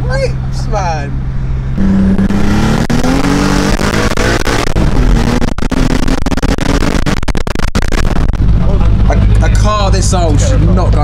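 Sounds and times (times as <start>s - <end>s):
car engine accelerating hard: 1.1s - 11.0s
sharp exhaust cracks: 1.6s - 9.6s.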